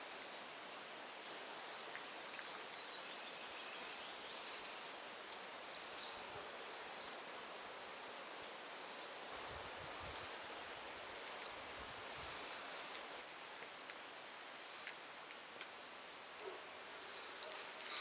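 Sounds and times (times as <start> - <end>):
soft steady hiss: 0.0 - 18.0
faint warbling bird: 1.9 - 7.3.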